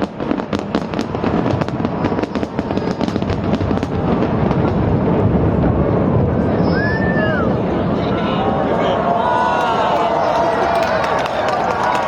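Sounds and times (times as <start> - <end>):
fireworks crackling: 0.0 - 6.8, 9.9 - 12.0
low rumble of firework bursts: 0.0 - 8.8.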